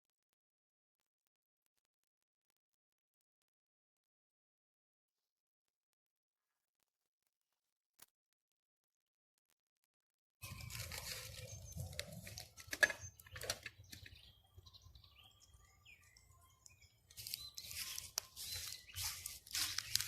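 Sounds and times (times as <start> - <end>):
crunching and rustling: 10.4 - 12.8, 17.1 - 20.0
faint bird chirps: 10.4 - 20.0.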